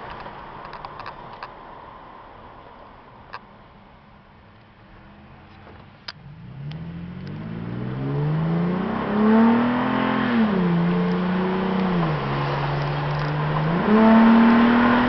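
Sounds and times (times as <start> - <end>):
truck engine accelerating: 5.0 - 15.0.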